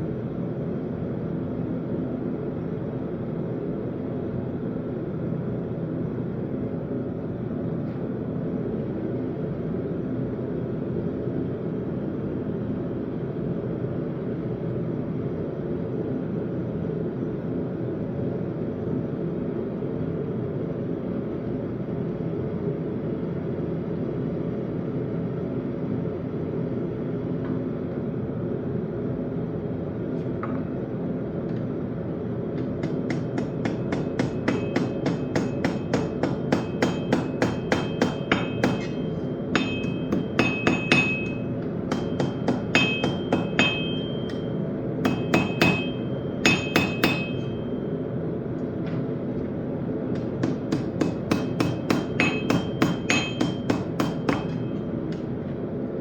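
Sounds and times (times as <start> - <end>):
hammer striking steel on anvil: 32.6 - 48.0, 50.1 - 55.4.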